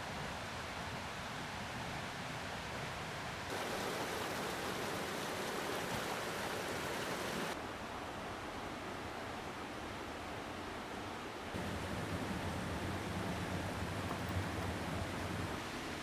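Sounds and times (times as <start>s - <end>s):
mountain stream rushing: 3.5s - 8.4s, 11.6s - 16.0s.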